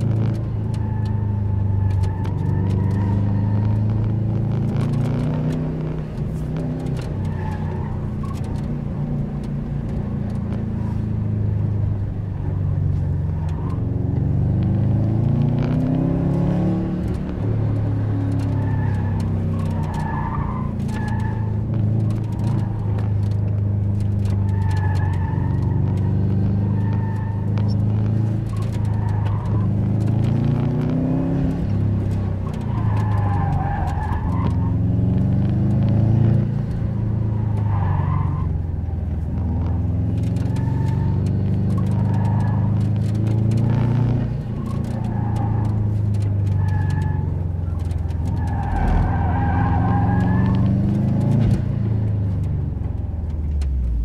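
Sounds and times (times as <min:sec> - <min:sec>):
car engine revving: 0:00.0 - 0:54.0
tyres squealing: 0:17.9 - 0:30.2, 0:31.0 - 0:36.3, 0:39.9 - 0:51.4.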